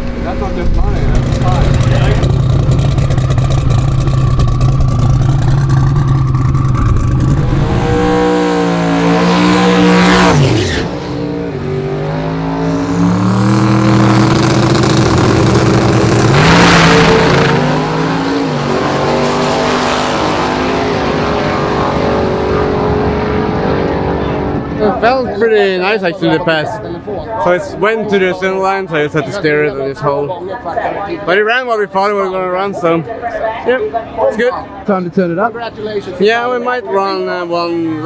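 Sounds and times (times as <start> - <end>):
drag racing engine passing: 0.0 - 29.7.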